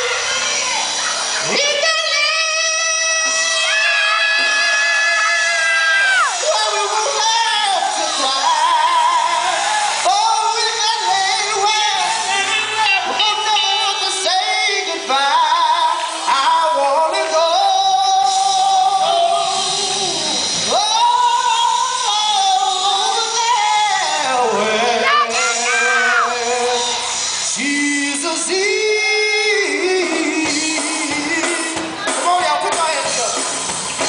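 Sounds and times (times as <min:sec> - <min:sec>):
gospel band playing: 0:00.0 - 0:34.0.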